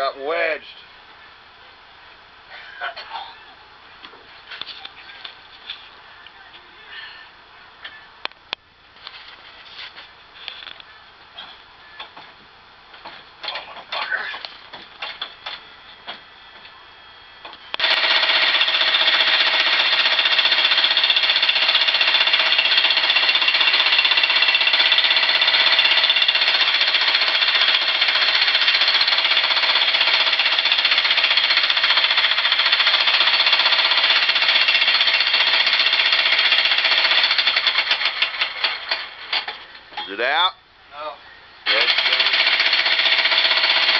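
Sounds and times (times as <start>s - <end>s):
jackhammer hammering: 17.8s - 39.7s, 41.7s - 43.9s.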